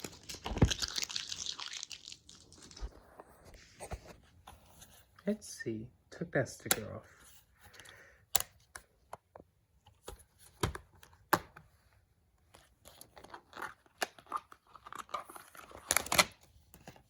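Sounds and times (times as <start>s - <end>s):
paper rustling and crinkling: 0.0s - 5.2s, 12.5s - 17.0s.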